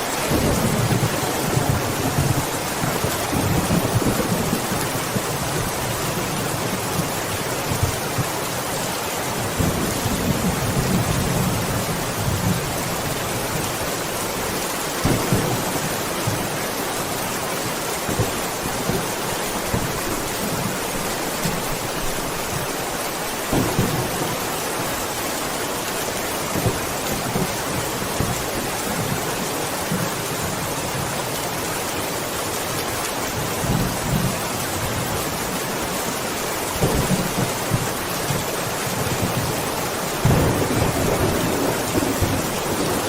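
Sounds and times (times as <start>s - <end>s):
heavy rain hissing: 0.0s - 43.0s
low rolls of thunder: 40.2s - 43.0s.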